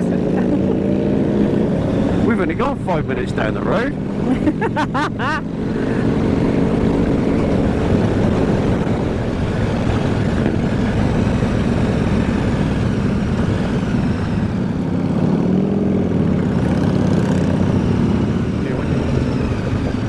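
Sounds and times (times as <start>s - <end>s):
motorcycle engine running: 0.0s - 20.0s
wind rushing over microphone: 5.4s - 20.0s.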